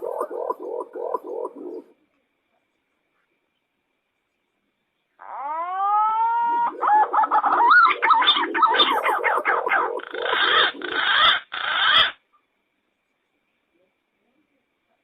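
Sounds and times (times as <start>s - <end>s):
pigeon whistling and warbling call: 5.3s - 12.2s.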